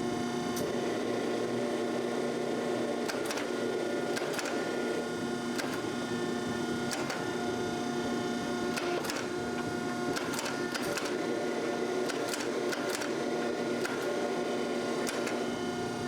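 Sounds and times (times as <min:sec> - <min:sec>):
small electric machine running: 0:00.0 - 0:16.0
sharp clicks: 0:03.1 - 0:03.5, 0:04.2 - 0:04.6, 0:10.1 - 0:11.2, 0:12.1 - 0:13.1, 0:15.0 - 0:15.4.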